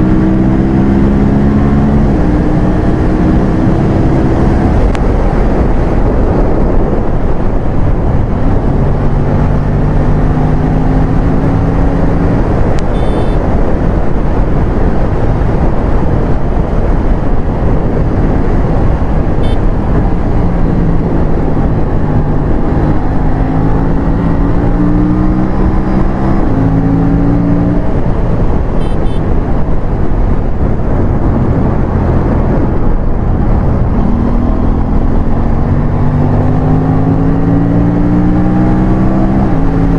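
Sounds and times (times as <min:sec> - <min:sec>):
motorcycle engine accelerating: 0:00.0 - 0:39.9
wind rush on microphone: 0:00.0 - 0:39.9.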